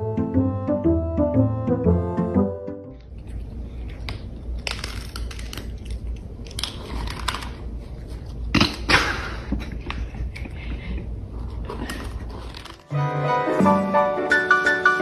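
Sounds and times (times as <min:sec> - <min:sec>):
music: 0:00.0 - 0:03.1, 0:12.9 - 0:15.0
low steady hum: 0:00.0 - 0:12.8.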